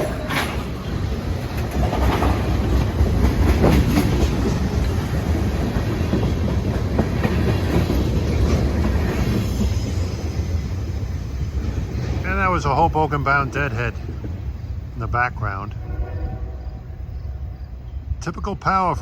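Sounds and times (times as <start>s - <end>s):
train wheel clicks: 0.0s - 10.2s
train rumbling past: 0.0s - 19.0s.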